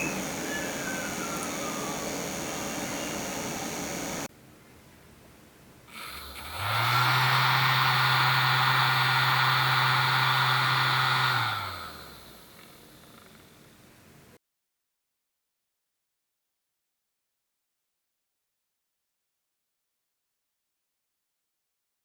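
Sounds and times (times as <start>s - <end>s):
electric fan humming: 0.0s - 4.3s, 6.0s - 13.0s.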